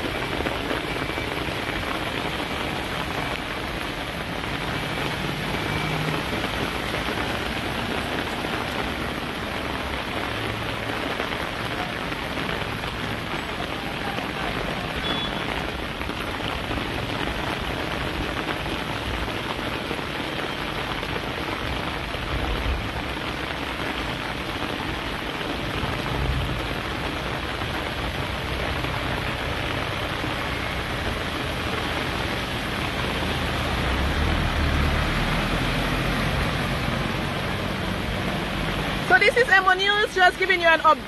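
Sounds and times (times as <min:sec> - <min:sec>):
heavy rain pouring: 0:00.0 - 0:41.0.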